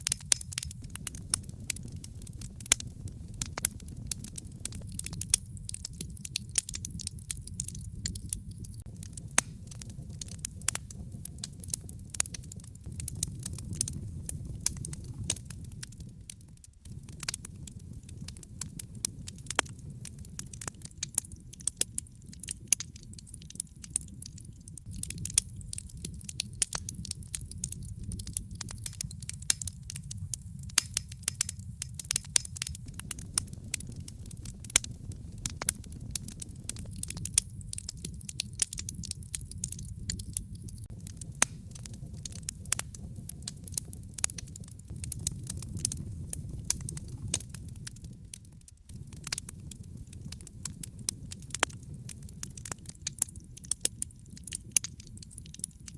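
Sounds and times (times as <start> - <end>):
fire pops and snaps: 0.0 - 55.9
low fire rumble: 0.0 - 55.9
wood fire crackling: 0.0 - 55.9.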